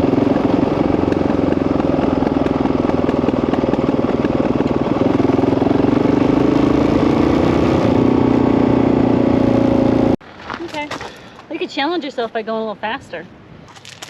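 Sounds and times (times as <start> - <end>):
dirt bike engine running: 0.0 - 10.2.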